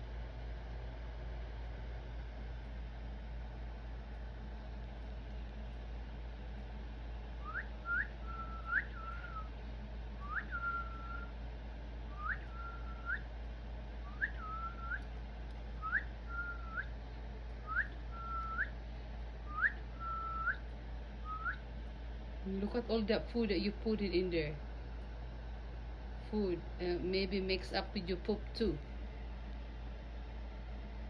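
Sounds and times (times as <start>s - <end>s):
steady low hum: 0.0s - 31.0s
cockatiel whistling: 7.4s - 9.5s, 10.2s - 11.3s, 12.1s - 13.2s, 14.1s - 15.0s, 15.8s - 16.9s, 17.6s - 18.7s, 19.5s - 20.6s, 21.2s - 21.6s.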